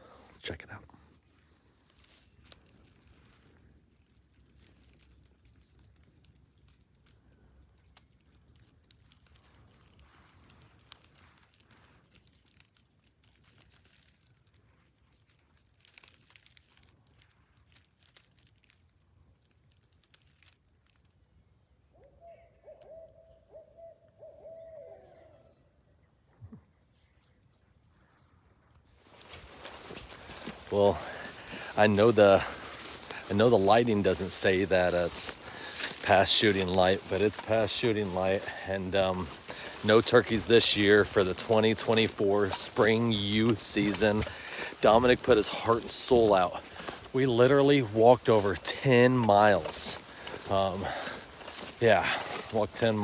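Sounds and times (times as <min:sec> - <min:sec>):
faint rustling of leaves: 0:00.0 - 0:53.0
owl hooting: 0:22.0 - 0:25.6.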